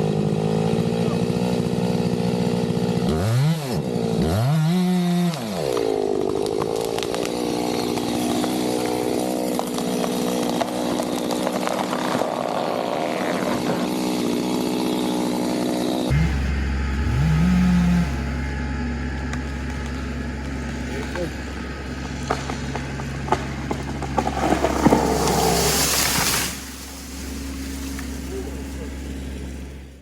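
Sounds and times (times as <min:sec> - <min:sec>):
chainsaw running at full throttle: 0:00.0 - 0:30.0.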